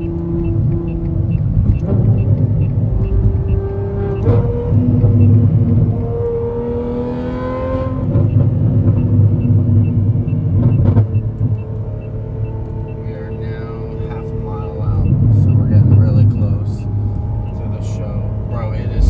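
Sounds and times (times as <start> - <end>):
exhaust cracks: 0.0 - 6.1, 12.6 - 19.0
sports car exhaust roaring: 0.0 - 19.0.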